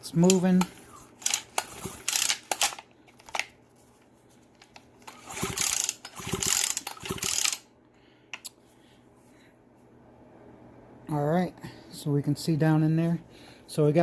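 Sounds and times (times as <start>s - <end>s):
engine scraping and ratcheting clicks: 5.0s - 7.6s.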